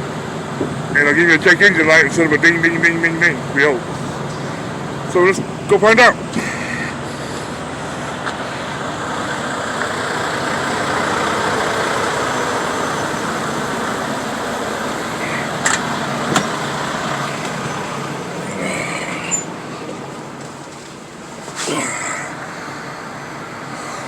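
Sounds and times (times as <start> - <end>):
trucks idling and traffic: 0.0 - 24.0.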